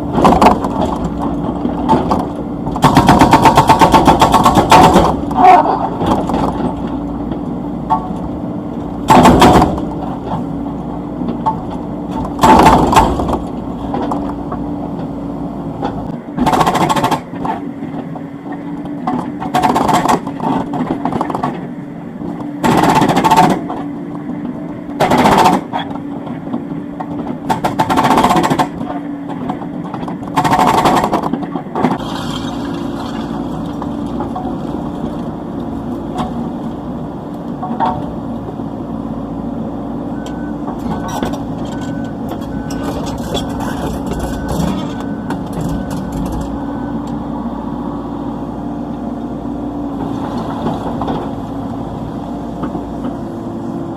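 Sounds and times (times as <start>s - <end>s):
excavator diesel engine running: 0.0s - 53.9s
hydraulic breaker hammering: 2.8s - 6.5s, 9.1s - 10.0s, 30.3s - 33.2s.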